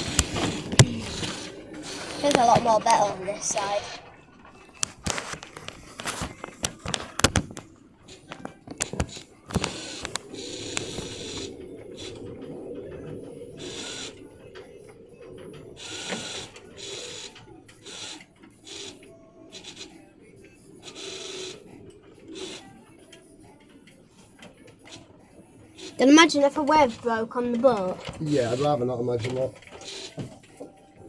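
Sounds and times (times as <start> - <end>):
loose fittings clicking and knocking: 0.0 - 20.0, 25.7 - 30.8
boat engine hum: 0.0 - 31.0
rushes of water noise: 0.0 - 31.0.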